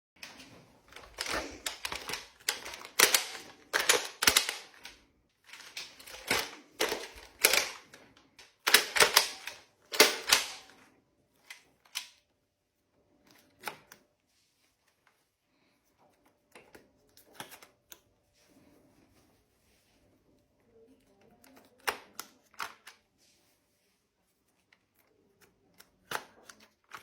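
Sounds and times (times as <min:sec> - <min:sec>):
toy blaster plastic clicks: 0:00.9 - 0:07.9, 0:08.6 - 0:10.7.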